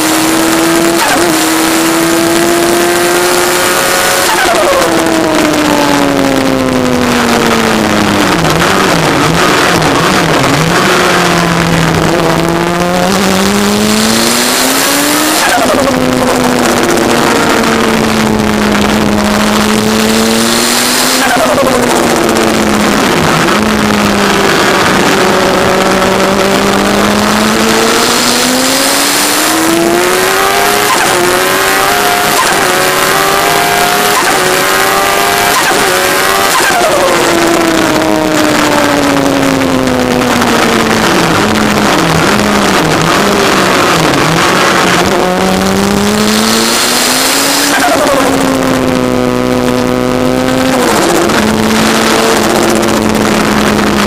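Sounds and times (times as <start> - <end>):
car engine revving: 0.0 - 54.0
heavy rushing noise: 0.0 - 54.0.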